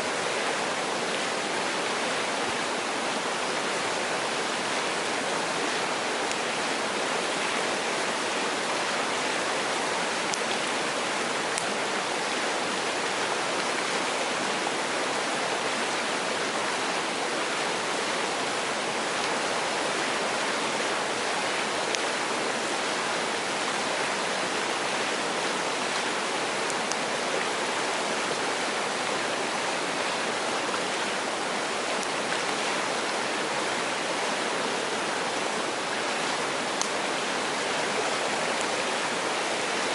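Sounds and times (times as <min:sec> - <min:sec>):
stream rushing over rocks: 0:00.0 - 0:39.9
faint sharp clicks: 0:36.8 - 0:37.0.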